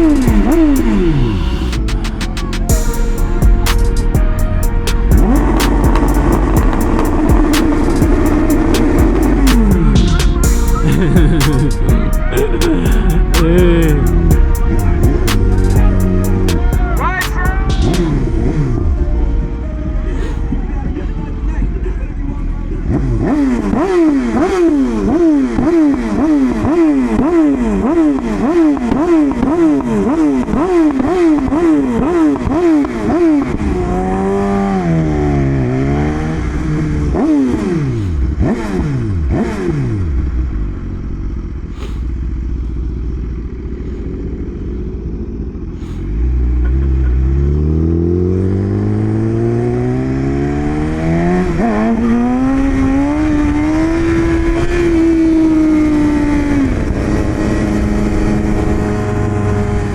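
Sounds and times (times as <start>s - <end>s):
engine accelerating: 0.0s - 59.9s
engine revving in quick blips: 3.3s - 18.9s
exhaust pops: 3.4s - 13.7s.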